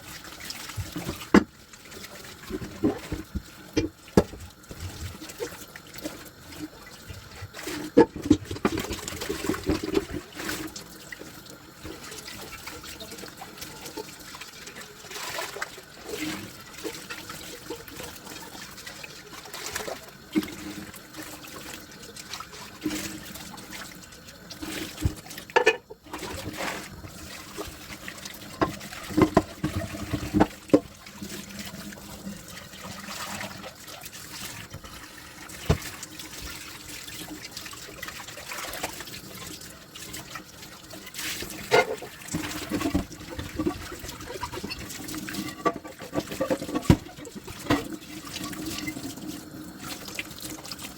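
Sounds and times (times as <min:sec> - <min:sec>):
water running in a sink: 0:00.0 - 0:50.9
dishes clinking: 0:25.5 - 0:26.0.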